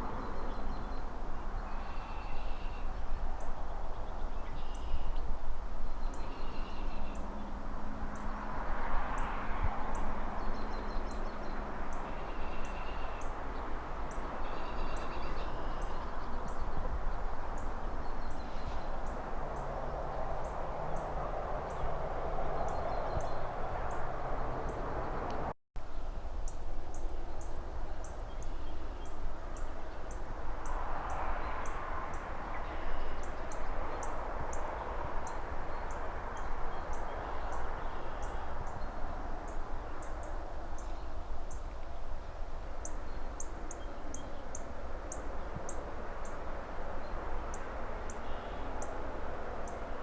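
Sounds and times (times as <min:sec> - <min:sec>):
distant city traffic: 0:00.0 - 0:50.0
bird chirping call: 0:00.2 - 0:05.2, 0:10.5 - 0:13.3.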